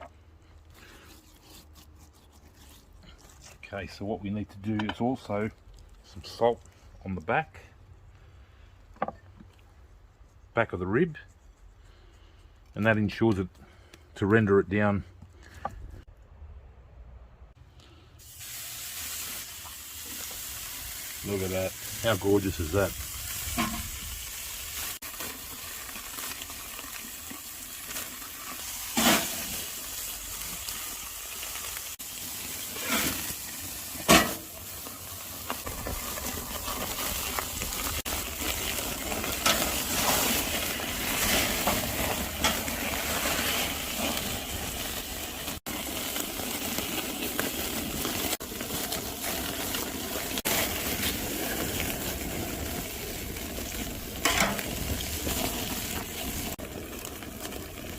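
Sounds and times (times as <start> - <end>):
steak sizzling on a grill: 18.2 - 57.9.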